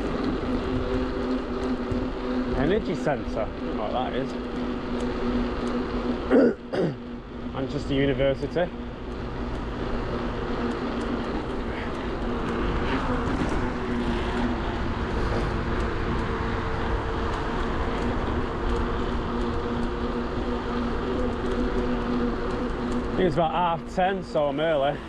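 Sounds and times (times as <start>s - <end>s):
wind rumble on microphone: 0.0s - 5.6s, 9.2s - 23.4s
bicycle tyre noise: 0.0s - 25.0s
steady low hum: 0.0s - 25.0s.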